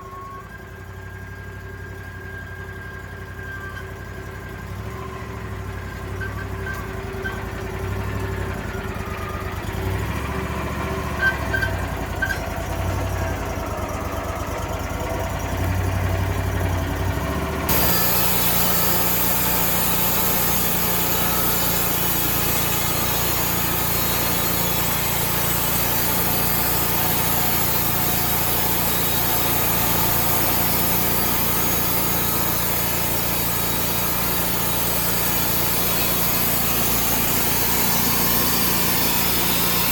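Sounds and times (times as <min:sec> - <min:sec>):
engine running under load: 0:00.0 - 0:39.9
saw blade cutting wood: 0:17.7 - 0:39.9
short squeals: 0:17.7 - 0:39.9.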